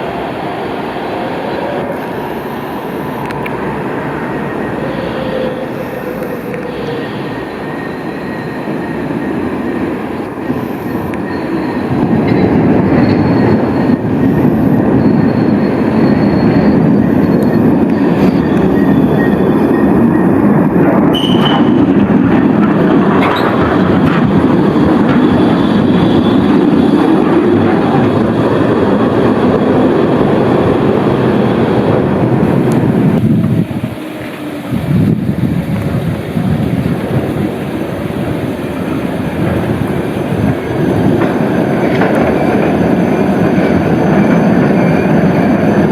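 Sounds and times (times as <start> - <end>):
high wheel squeal: 0.0 - 35.2, 37.3 - 45.9
tram rolling along track: 0.0 - 45.9.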